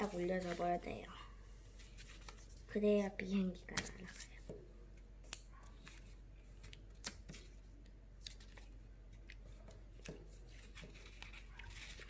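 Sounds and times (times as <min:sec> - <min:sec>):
paper crinkling and snapping: 0:05.3 - 0:12.0.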